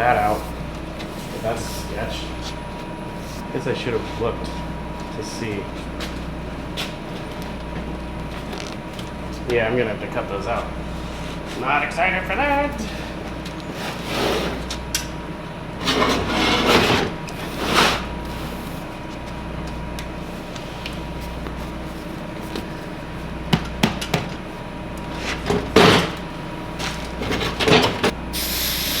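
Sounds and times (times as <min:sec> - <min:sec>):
steady background hum: 0:00.0 - 0:29.0.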